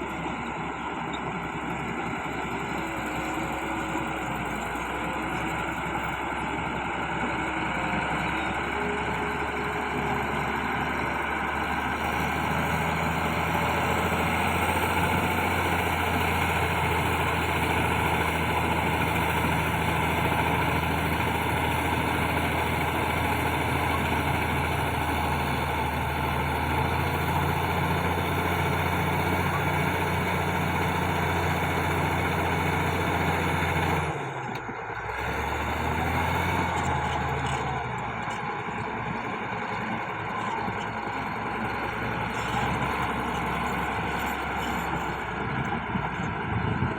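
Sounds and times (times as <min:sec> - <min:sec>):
bulldozer diesel engine droning: 0:00.0 - 0:46.9.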